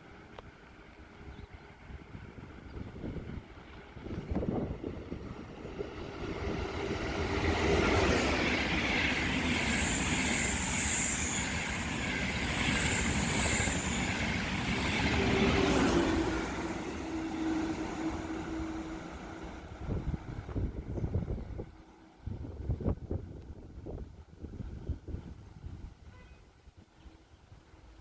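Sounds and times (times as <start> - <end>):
train wheels on rails: 2.0 - 21.8.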